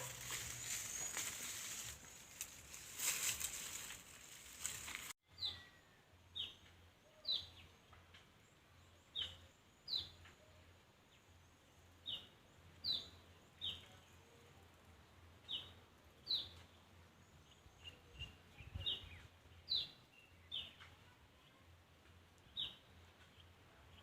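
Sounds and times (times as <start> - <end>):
faint outdoor background noise: 0.0 - 24.0
bird chirping: 5.3 - 14.4, 15.4 - 20.9, 22.4 - 24.0.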